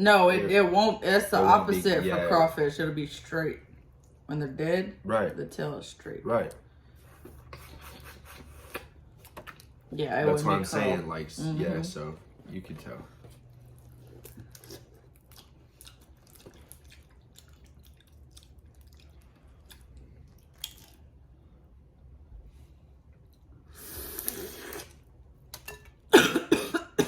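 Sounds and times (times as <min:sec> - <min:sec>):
loud cough: 0:26.1 - 0:27.0.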